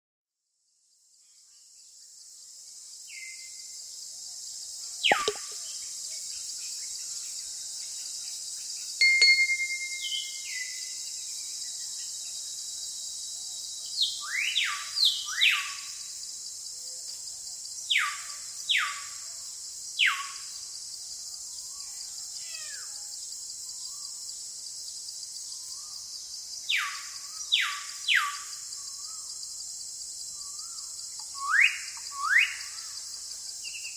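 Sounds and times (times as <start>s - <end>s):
high hiss of insects: 0.7s - 33.9s
bird falling whistles: 5.0s - 5.6s.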